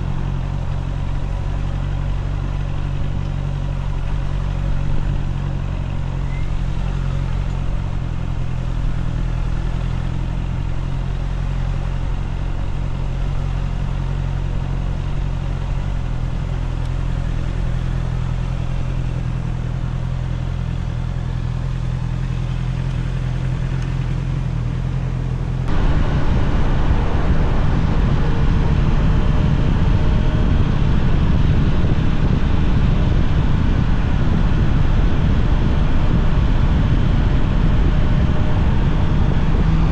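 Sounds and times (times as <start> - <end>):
motorcycle engine idling: 0.0 - 29.9
wind noise on microphone: 25.7 - 39.9.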